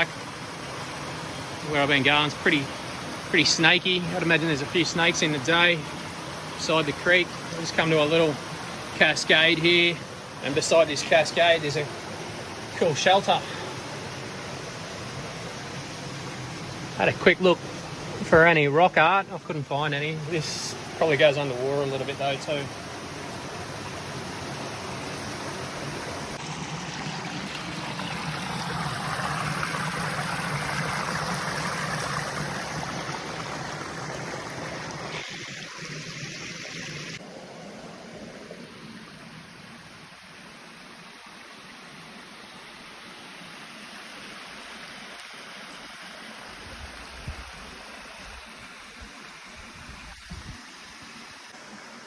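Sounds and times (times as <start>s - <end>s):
creek water rushing over rocks: 0.0s - 52.0s.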